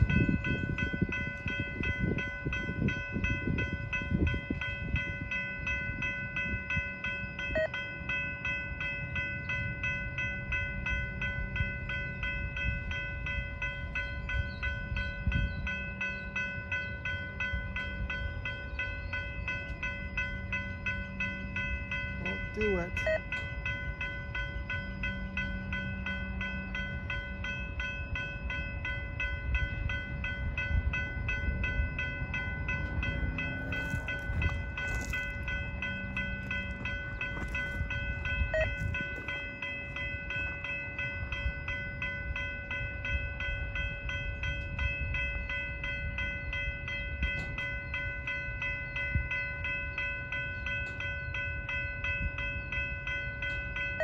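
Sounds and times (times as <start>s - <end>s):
train wheels rumbling on rails: 0.0s - 49.5s
high ringing tones: 0.0s - 54.0s.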